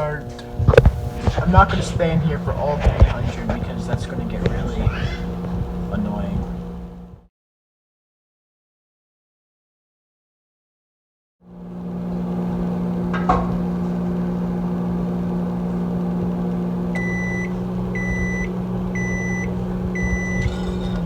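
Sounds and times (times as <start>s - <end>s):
microwave oven humming: 0.0s - 7.3s, 11.5s - 21.0s
microwave click: 15.6s - 21.0s
high microwave beeps: 16.9s - 21.0s.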